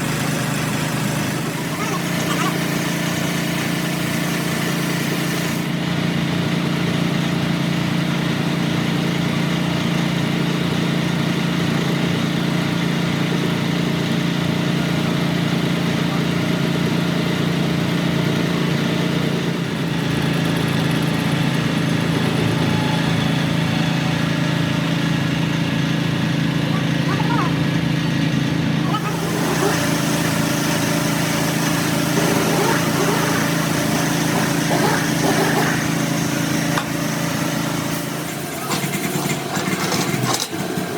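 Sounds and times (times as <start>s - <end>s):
motor humming: 0.0s - 6.0s, 19.6s - 40.9s.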